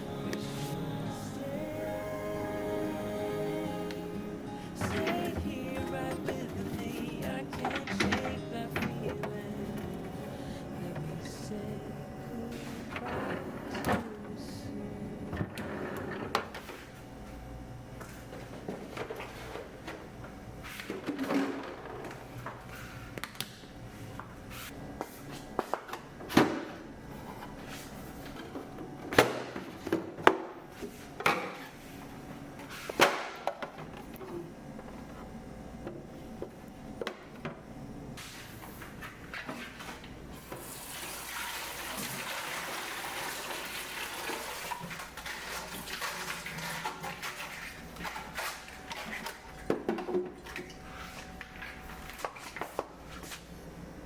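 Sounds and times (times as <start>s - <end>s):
items knocking and clattering: 20.9s - 22.6s, 48.0s - 50.7s
kitchen tap running into sink: 40.6s - 47.6s.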